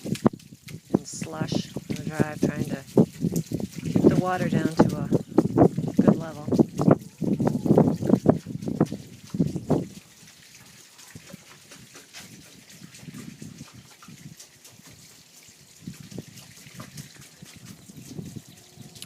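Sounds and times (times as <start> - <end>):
low splashing: 0.0 - 19.0
water trickling down a rain chain: 0.0 - 19.0.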